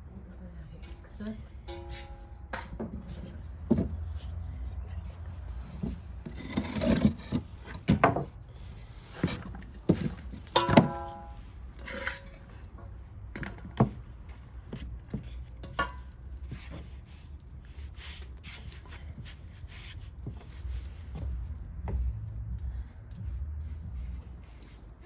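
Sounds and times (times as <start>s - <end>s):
ringing metal clink: 1.7s - 2.5s.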